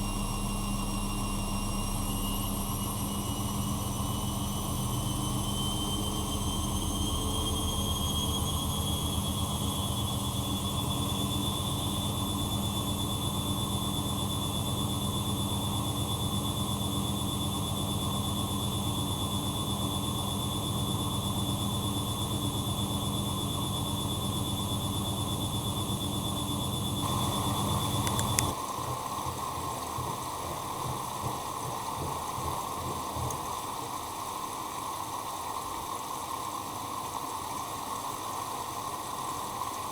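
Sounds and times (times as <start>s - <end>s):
washing machine motor whine: 0.0s - 39.9s
water rushing into machine: 0.0s - 39.9s
motor stopping click: 26.0s - 28.6s.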